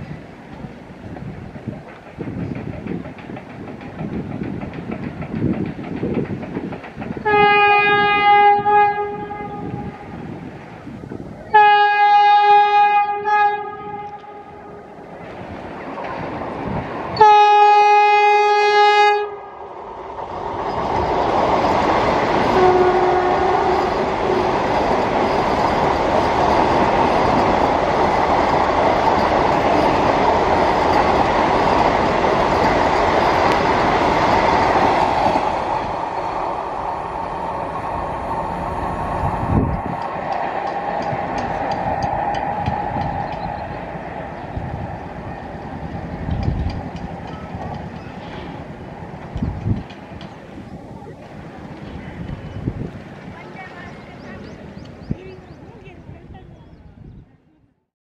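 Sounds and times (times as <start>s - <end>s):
train wheels rushing on rails: 0.0s - 56.6s
train horn blasts: 7.2s - 10.1s, 11.5s - 14.9s, 17.2s - 19.5s, 22.5s - 24.5s.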